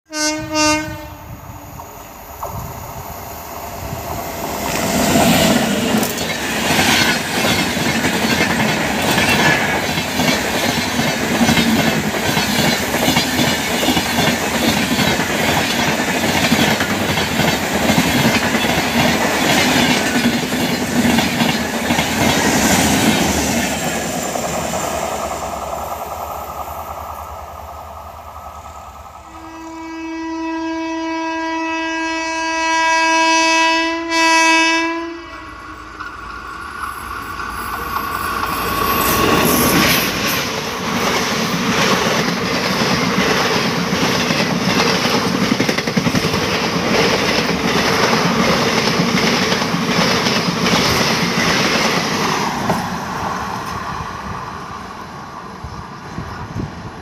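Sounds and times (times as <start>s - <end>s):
train horn blast: 0.1s - 1.4s, 29.2s - 35.8s
train passing at speed: 0.1s - 57.0s.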